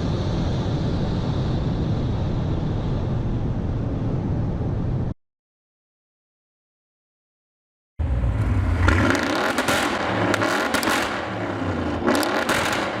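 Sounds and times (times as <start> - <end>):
car engine accelerating hard: 8.0 - 13.0
exhaust cracks: 8.0 - 13.0.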